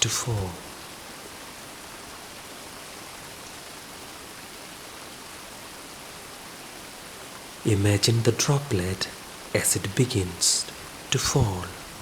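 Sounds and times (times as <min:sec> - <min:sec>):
gentle rain falling: 0:00.0 - 0:12.0.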